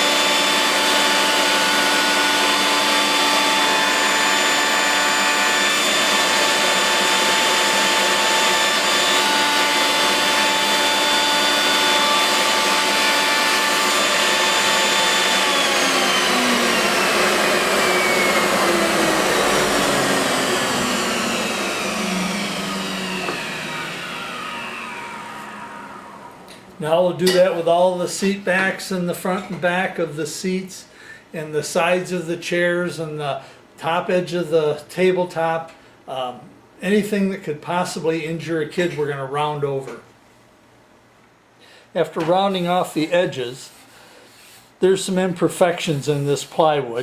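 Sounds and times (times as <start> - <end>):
router whining and winding down: 0.0 - 26.7.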